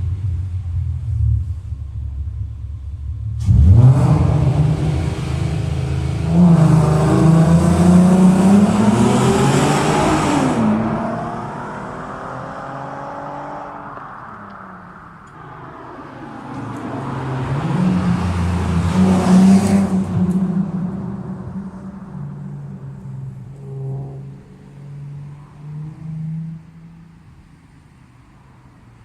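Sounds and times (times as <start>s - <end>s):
car engine launching hard: 3.3s - 24.5s.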